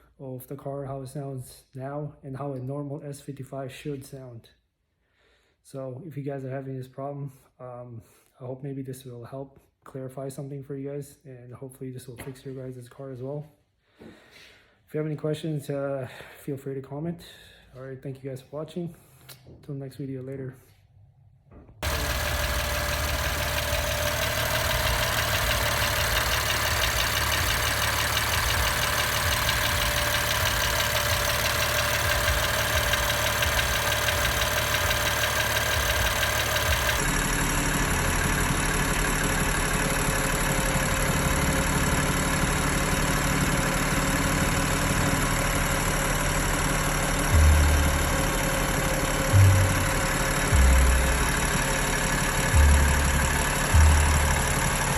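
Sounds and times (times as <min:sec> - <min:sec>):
car engine idling: 0:21.8 - 0:54.9.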